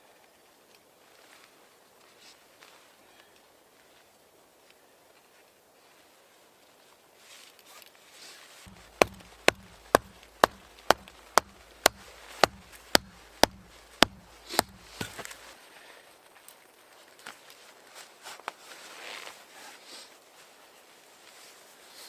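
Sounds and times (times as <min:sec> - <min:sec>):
tool striking sharp blows: 0:08.7 - 0:15.5.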